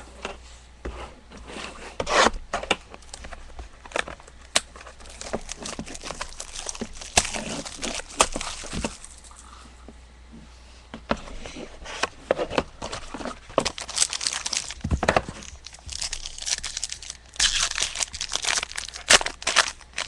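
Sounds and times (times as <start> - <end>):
packs being torn open: 4.6 - 9.3, 13.6 - 20.0
wrapper crinkling and rustling: 4.7 - 9.4, 12.8 - 20.0.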